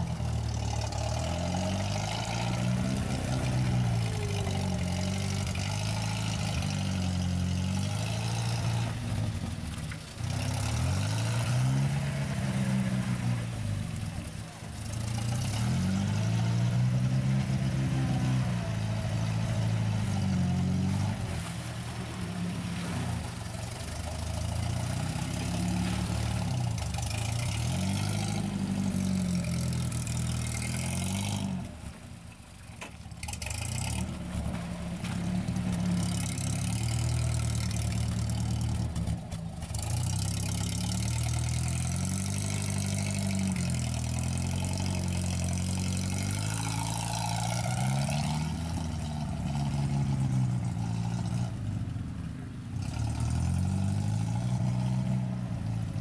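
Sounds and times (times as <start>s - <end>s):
vehicle engine revving: 0.0s - 32.3s, 33.2s - 56.0s.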